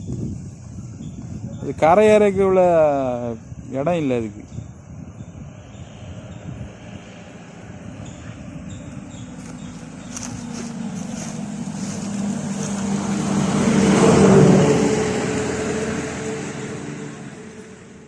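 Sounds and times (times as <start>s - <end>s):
engine passing by: 5.0s - 18.0s.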